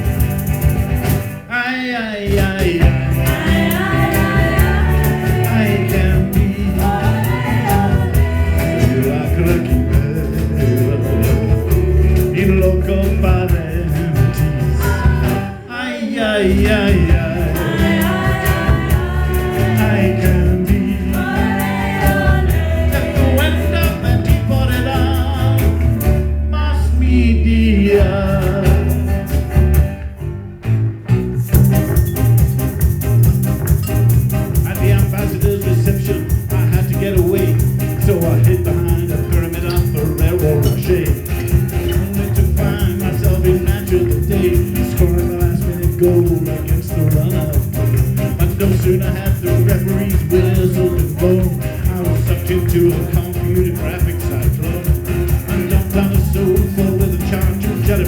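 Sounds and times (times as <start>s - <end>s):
drum beat: 0.0s - 1.4s, 2.3s - 15.6s, 16.5s - 26.2s, 28.0s - 30.0s, 31.1s - 58.0s
live band playing: 0.0s - 1.5s, 2.2s - 58.0s
bass: 0.0s - 58.0s
guitar: 0.0s - 58.0s
person singing: 1.5s - 25.9s, 48.4s - 58.0s.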